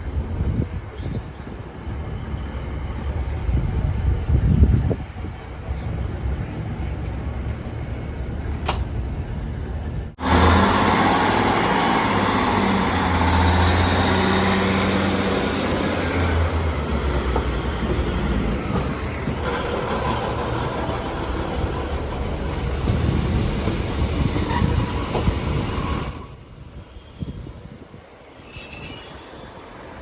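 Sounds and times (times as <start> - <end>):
diesel train engine hum: 0.0 - 26.8.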